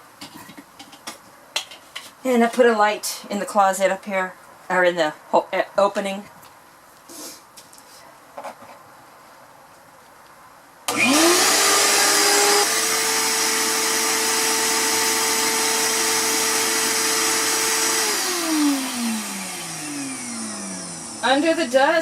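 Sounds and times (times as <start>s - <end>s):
shop vac motor whine: 10.9s - 22.0s.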